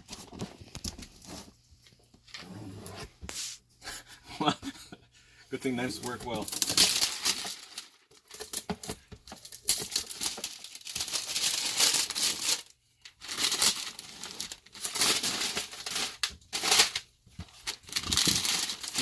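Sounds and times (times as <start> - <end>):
packaging crinkling and tearing: 6.1 - 19.0.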